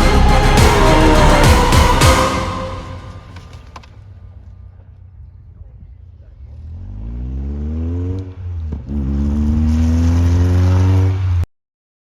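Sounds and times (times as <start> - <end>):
car engine accelerating hard: 6.1 - 11.5.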